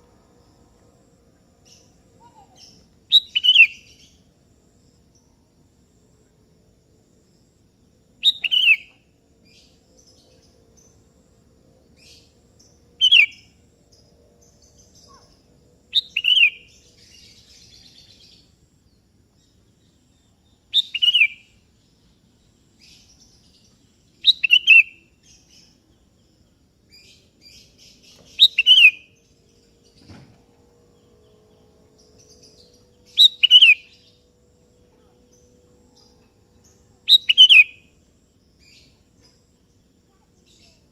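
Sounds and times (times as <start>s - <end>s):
bird calling: 1.8s - 4.0s, 8.2s - 9.0s, 28.4s - 29.1s, 33.1s - 34.1s, 37.1s - 37.8s.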